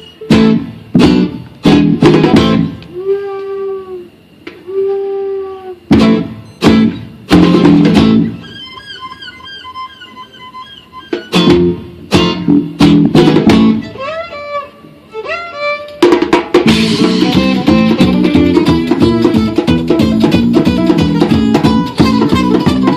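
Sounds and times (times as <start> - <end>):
strummed guitar chords: 0.2 - 2.9, 5.9 - 9.9, 10.9 - 22.9
dense percussion: 0.3 - 2.8, 5.9 - 8.4, 16.1 - 22.9
high sliding melody line: 16.7 - 22.9.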